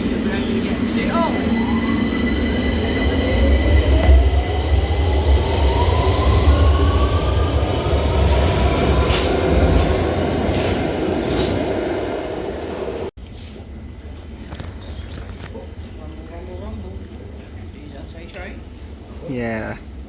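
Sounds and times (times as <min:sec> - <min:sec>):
deep train running rumble: 0:00.0 - 0:13.1.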